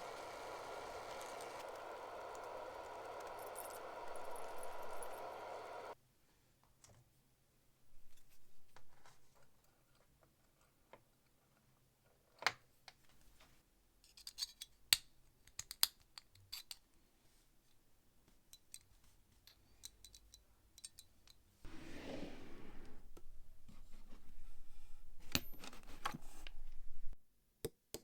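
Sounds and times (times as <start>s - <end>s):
light metal scrapes: 21.7s - 27.2s.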